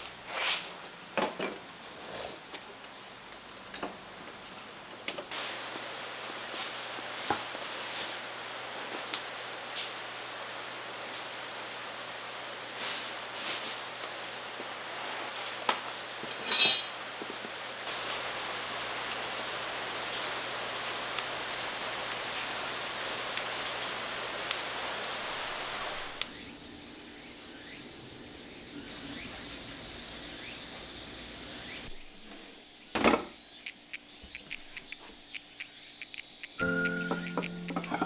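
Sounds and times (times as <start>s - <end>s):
steady rain: 2.4s - 16.4s, 17.0s - 32.0s
high-pitched insect trill: 25.1s - 32.0s, 32.7s - 38.0s
small clicks: 33.6s - 38.0s.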